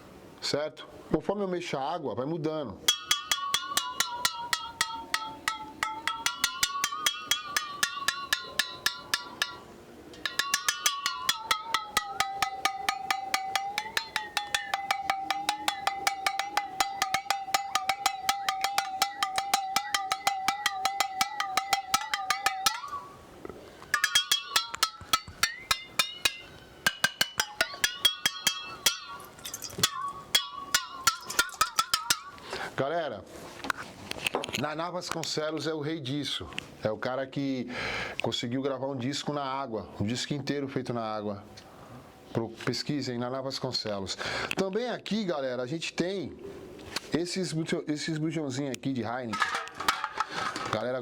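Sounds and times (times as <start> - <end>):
metal bottle struck ringing: 2.9 - 23.2, 23.8 - 32.6.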